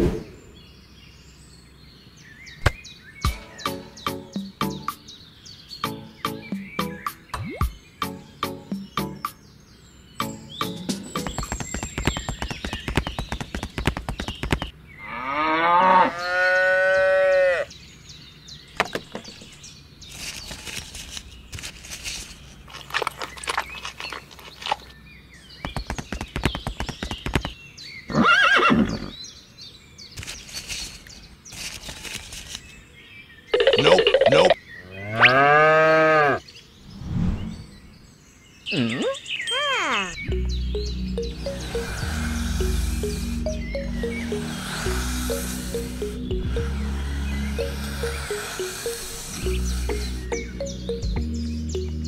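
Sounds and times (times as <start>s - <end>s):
rustling: 20.0s - 24.9s, 30.2s - 32.8s.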